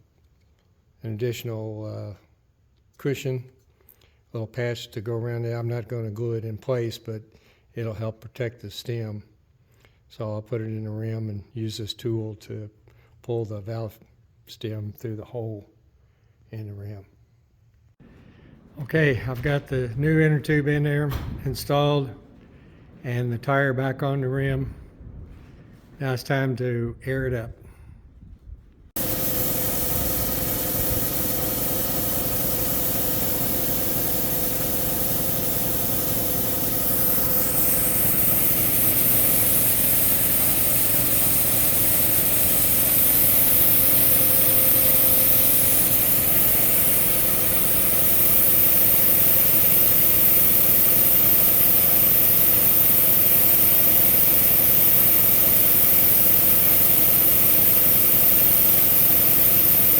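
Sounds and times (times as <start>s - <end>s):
air compressor running: 29.0s - 59.9s
high air hiss: 29.0s - 59.9s.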